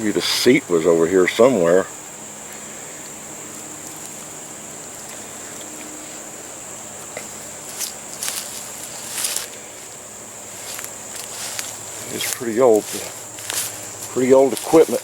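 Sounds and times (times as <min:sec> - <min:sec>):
insects droning: 0:00.0 - 0:15.0
rustles in brush: 0:07.2 - 0:15.0.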